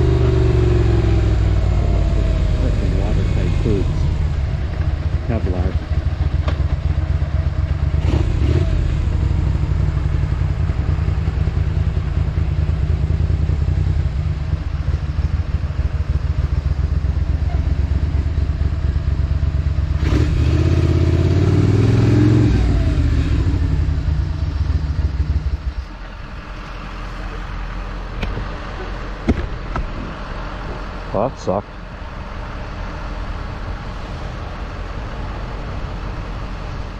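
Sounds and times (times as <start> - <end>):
motorcycle engine running: 0.0 - 27.5.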